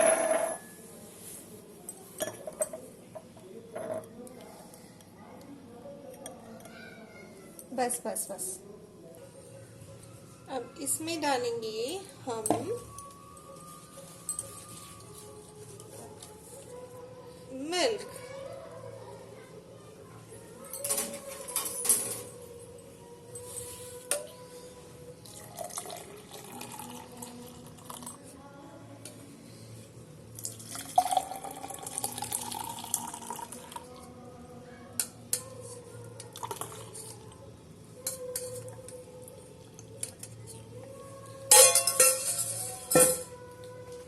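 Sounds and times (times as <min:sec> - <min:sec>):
glassware clinking: 0:00.0 - 0:00.8, 0:02.2 - 0:04.2, 0:41.5 - 0:43.4
milk pouring into glass: 0:25.2 - 0:28.2, 0:30.4 - 0:33.9, 0:36.3 - 0:37.0
dishes clattering: 0:41.5 - 0:43.3.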